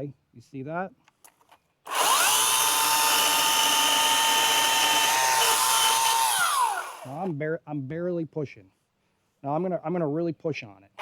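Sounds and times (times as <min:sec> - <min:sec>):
electric chainsaw whining: 0:01.9 - 0:07.3.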